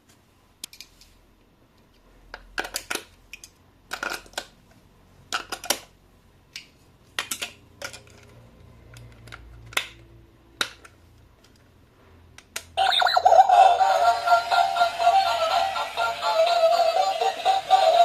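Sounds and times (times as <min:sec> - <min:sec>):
music with synthetic sung voice: 0:12.8 - 0:18.0.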